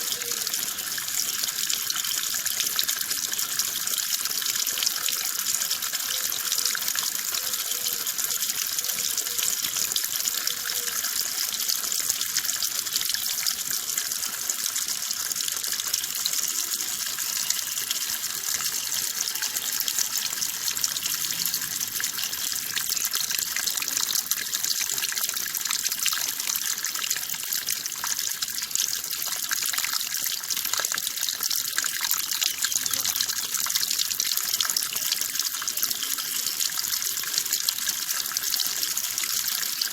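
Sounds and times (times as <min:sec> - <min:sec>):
water running: 0:00.0 - 0:39.9.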